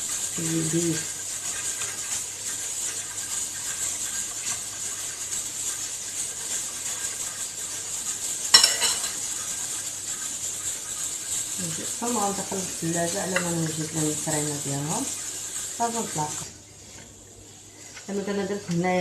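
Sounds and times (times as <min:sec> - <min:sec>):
steady hiss: 0:00.0 - 0:19.0
dishes and utensils handled: 0:08.5 - 0:09.2.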